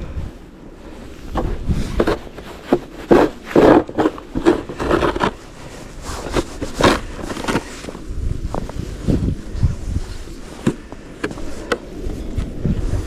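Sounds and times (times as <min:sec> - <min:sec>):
snow being scraped: 0:00.9 - 0:10.8.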